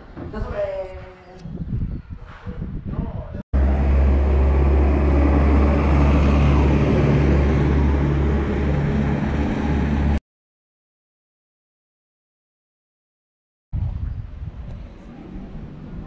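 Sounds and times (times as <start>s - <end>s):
vehicle engine running: 3.6s - 10.2s.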